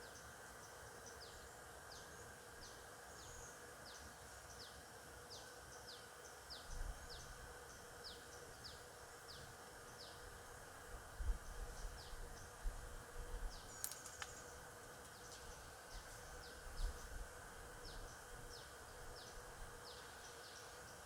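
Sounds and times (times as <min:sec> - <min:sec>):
sharp clicks: 0:13.7 - 0:14.4.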